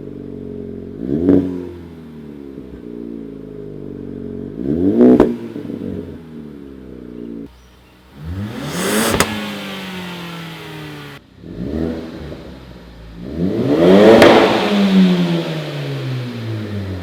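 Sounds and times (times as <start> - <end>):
car engine revving: 0.3 - 3.3, 4.3 - 17.0
exhaust crack: 7.5 - 17.0.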